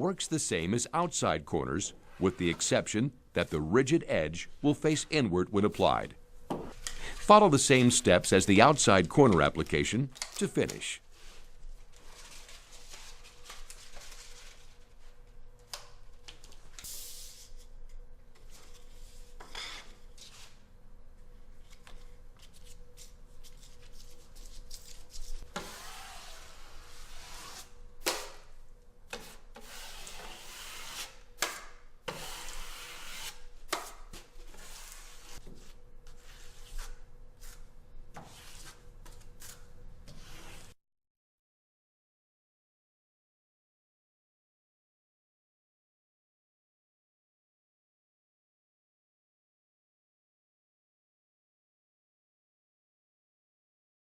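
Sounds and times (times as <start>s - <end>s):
drywall knife scraping compound: 25.5s - 28.4s, 29.1s - 38.8s, 39.4s - 40.8s.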